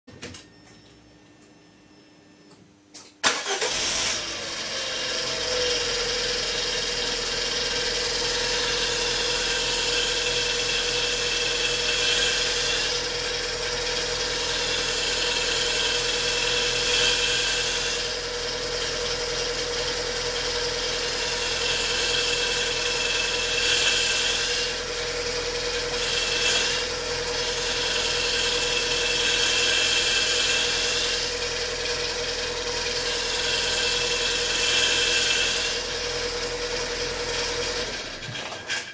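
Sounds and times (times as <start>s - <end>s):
car engine starting and idling: 3.2s - 8.7s.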